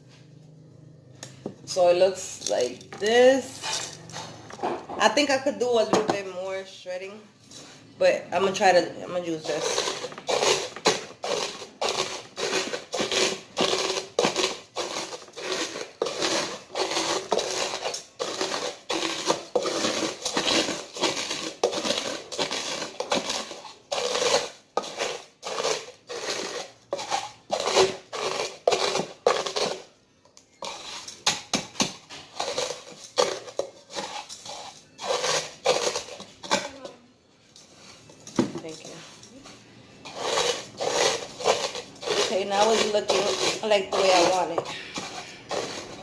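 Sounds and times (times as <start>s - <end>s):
tortilla chips being crushed: 9.6s - 30.0s, 30.6s - 36.6s, 40.1s - 46.0s.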